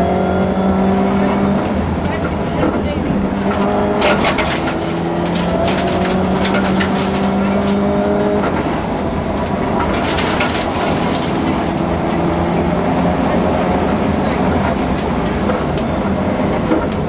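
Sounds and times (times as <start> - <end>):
rally car engine pulling hard: 0.0 - 17.0
sharp cracks and rattles: 3.5 - 8.7, 9.8 - 12.3.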